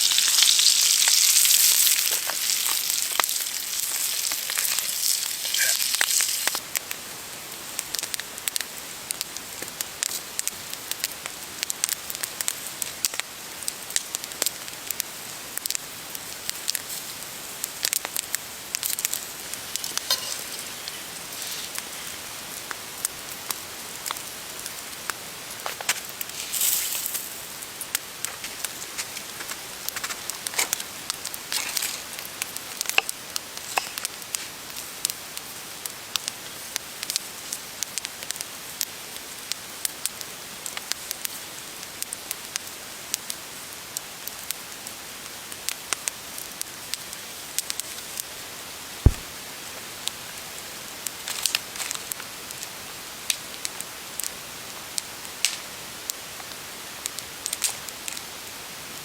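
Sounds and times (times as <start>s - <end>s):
fire popping: 0.0s - 7.0s, 7.8s - 38.4s, 49.0s - 49.4s
fire hissing: 0.0s - 15.0s, 15.6s - 35.8s, 49.0s - 49.3s
campfire crackling: 0.0s - 58.8s.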